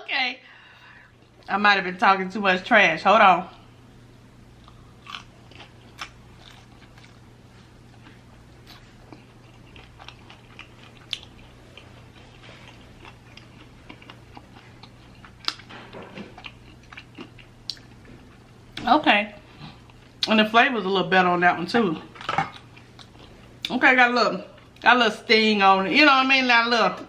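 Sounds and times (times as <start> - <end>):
person biting and chewing: 4.6 - 7.2, 8.6 - 15.7.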